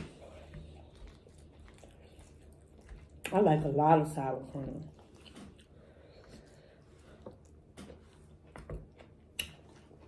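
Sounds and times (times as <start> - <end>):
faint chewing mouth noises: 0.0 - 10.0.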